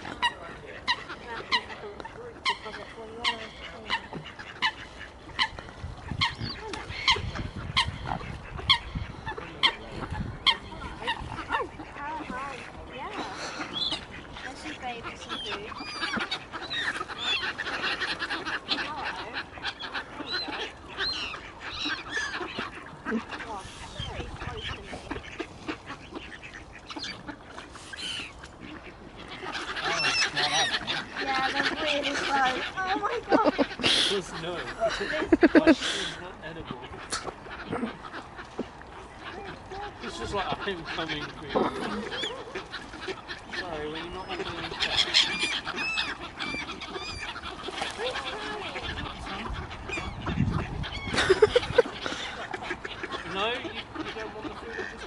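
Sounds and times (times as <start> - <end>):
waterfowl honking and calling: 0.0 - 55.0.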